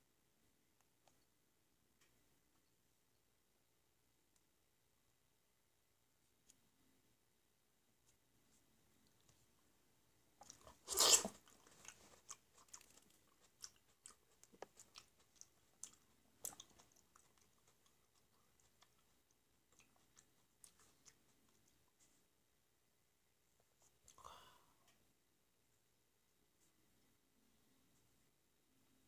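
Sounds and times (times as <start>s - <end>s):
soft clicking chewing: 0.8s - 2.8s, 6.3s - 6.8s, 8.0s - 9.7s, 10.3s - 22.3s
loud bite into grape: 10.4s - 12.0s.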